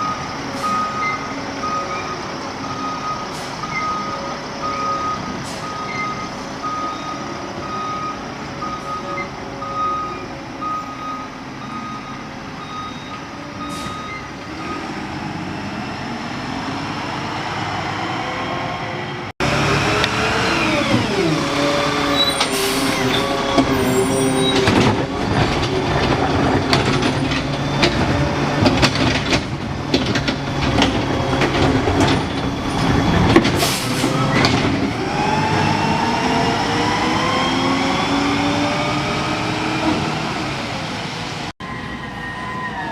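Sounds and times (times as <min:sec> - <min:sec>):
backup alarm beeping: 0:00.0 - 0:14.9
truck engine revving: 0:11.4 - 0:41.5
air brake hisses: 0:33.6 - 0:34.2.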